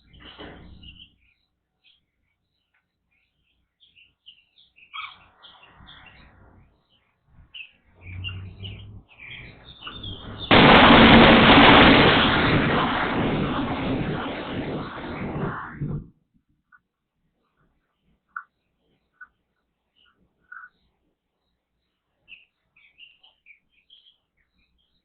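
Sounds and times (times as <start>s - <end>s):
small songbirds chirping: 0.0s - 10.5s, 17.5s - 25.0s
loud rushing noise: 9.9s - 16.1s.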